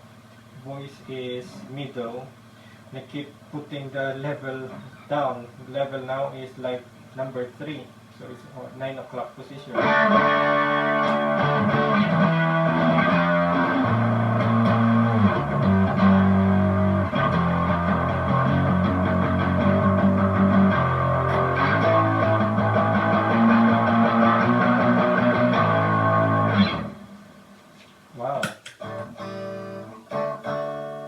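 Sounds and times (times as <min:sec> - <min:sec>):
distorted electric guitar: 0:09.7 - 0:27.4, 0:28.4 - 0:31.0.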